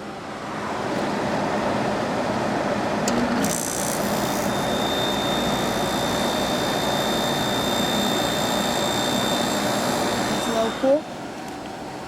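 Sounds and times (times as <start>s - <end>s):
air conditioner blower rushing: 0.0s - 12.0s
thin high whine: 3.3s - 11.2s.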